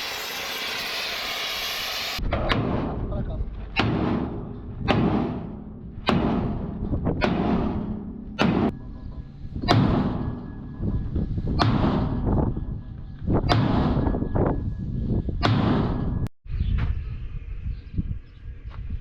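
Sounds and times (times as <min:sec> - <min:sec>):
hammer blows on steel: 0:03.8 - 0:16.3.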